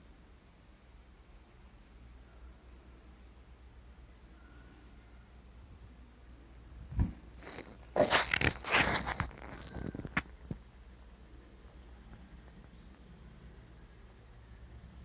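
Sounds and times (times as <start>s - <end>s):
rustling and scraping: 7.3s - 10.4s.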